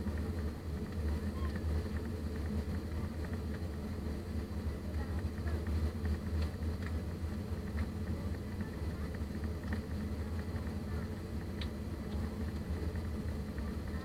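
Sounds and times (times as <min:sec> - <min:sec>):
airflow around aircraft: 0:00.0 - 0:14.0
jet engines droning in cabin: 0:00.0 - 0:14.0
faint ticks: 0:11.5 - 0:12.7.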